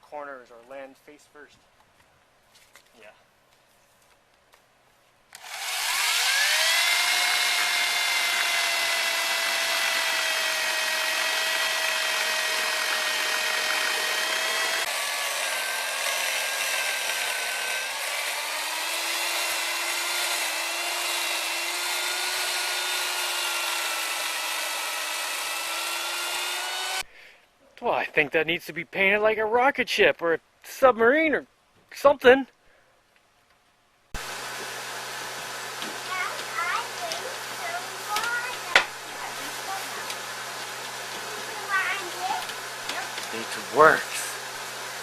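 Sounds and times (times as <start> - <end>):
electric chainsaw cutting wood: 5.3 - 27.1, 34.2 - 45.0.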